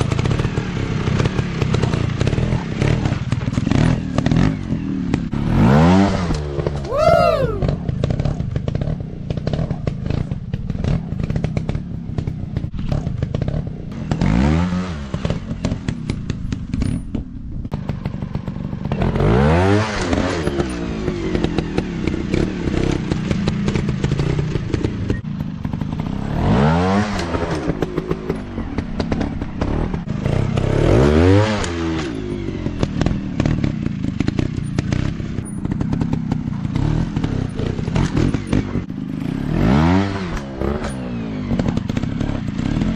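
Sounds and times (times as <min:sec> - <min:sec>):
dirt bike engine revving: 0:02.4 - 0:09.6, 0:18.9 - 0:42.9.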